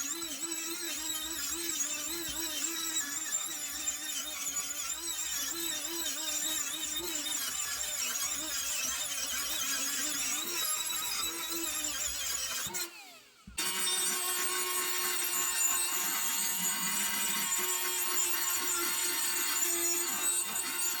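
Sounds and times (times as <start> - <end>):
power tool polishing metal: 0.0 - 21.0.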